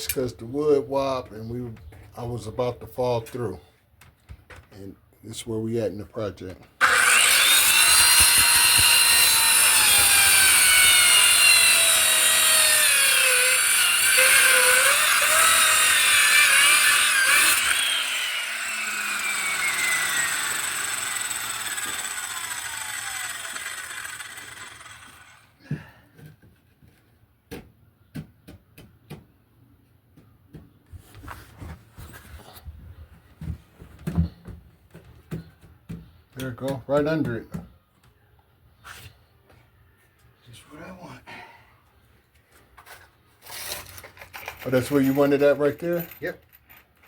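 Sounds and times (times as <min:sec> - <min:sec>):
power saw cutting wood: 0:06.8 - 0:25.5.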